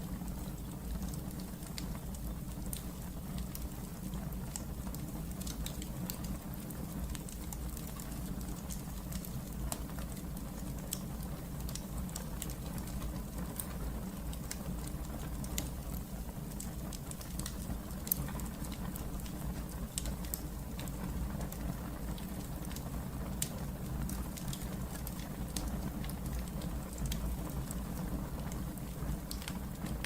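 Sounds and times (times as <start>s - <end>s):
fire crackling and popping: 0.0s - 30.0s
low rumble of flames: 0.0s - 30.0s.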